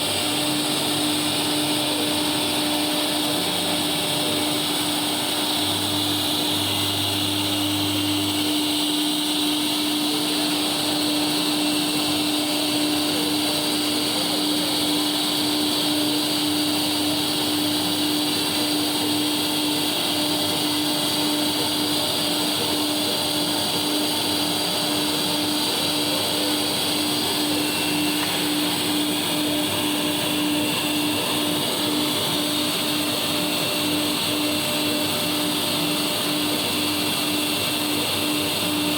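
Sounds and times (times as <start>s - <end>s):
engraving machine running: 0.0s - 38.9s
vacuum cleaner hum and hiss: 0.0s - 38.9s.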